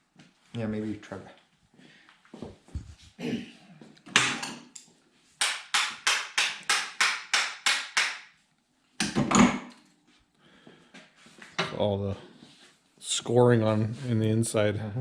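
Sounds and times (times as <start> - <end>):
hammer striking metal: 5.4 - 8.3.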